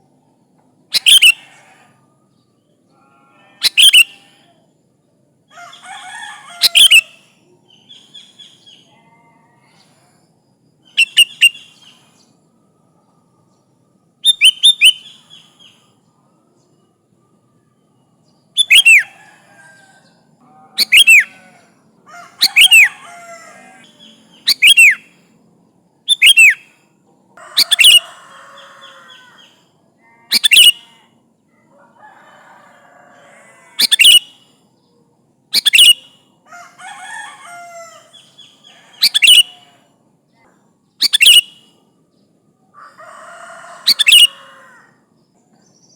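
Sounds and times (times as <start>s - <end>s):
bird whistling phrases: 0.9s - 1.6s, 3.6s - 4.3s, 6.6s - 7.2s, 10.9s - 12.0s, 14.2s - 15.7s, 18.6s - 19.2s, 20.8s - 21.4s, 22.4s - 25.1s, 26.1s - 26.6s, 27.6s - 28.1s, 30.3s - 31.0s, 33.8s - 34.4s, 35.6s - 36.2s, 38.2s - 39.8s, 41.0s - 41.8s, 43.8s - 44.5s
bird chattering notes: 1.0s - 1.4s, 3.6s - 4.2s, 11.0s - 11.6s, 18.6s - 19.1s, 20.8s - 21.4s, 22.4s - 23.0s, 24.4s - 25.0s, 26.1s - 26.6s, 27.6s - 28.0s, 30.3s - 30.9s, 33.8s - 34.3s, 35.6s - 36.0s, 39.0s - 39.6s, 41.0s - 41.5s, 43.9s - 44.4s.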